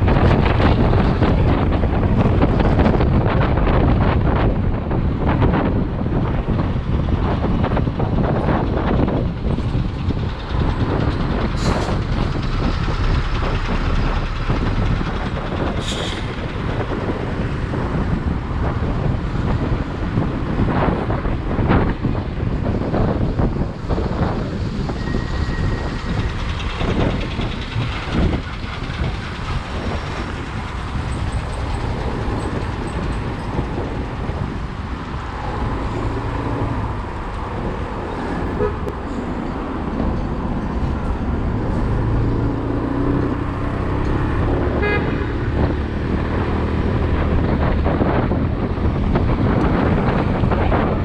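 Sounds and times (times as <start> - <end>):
motorcycle engine and road noise: 0.0 - 51.0
wind buffeting microphone: 0.0 - 51.0
short horn toot: 44.8 - 45.3.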